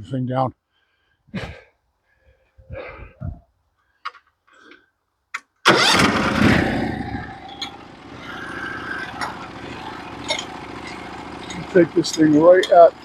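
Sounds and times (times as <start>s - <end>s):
sawmill engine starting and running: 5.7s - 13.0s.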